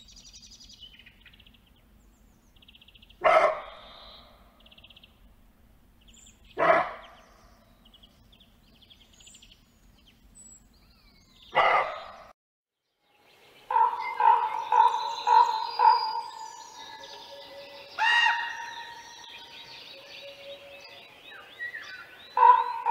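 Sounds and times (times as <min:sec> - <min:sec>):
bark-like calls: 0:03.2 - 0:04.1, 0:06.6 - 0:07.3, 0:11.5 - 0:12.3, 0:13.7 - 0:17.1, 0:22.3 - 0:22.9
raven calling: 0:13.7 - 0:20.8.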